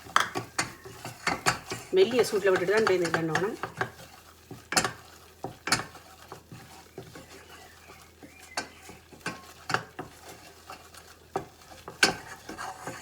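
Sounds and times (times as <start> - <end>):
spoon stirring and scraping pan: 0.0 - 13.0
utensil knocking against pan: 0.1 - 4.0.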